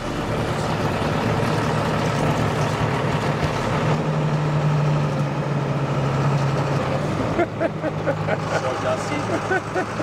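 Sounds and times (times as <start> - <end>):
car engine humming: 0.0 - 10.0.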